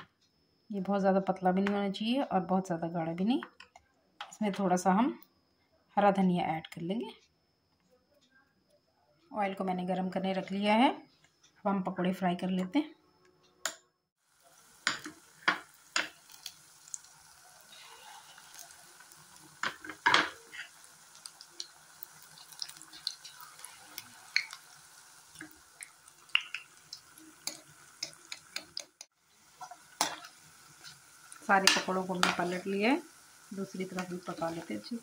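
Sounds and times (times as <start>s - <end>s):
food frying in hot oil: 14.2s - 35.0s
spoon tapping bowl and pan: 14.8s - 16.2s, 19.6s - 20.7s, 24.3s - 24.6s, 25.4s - 29.0s, 29.6s - 31.0s, 31.6s - 32.6s.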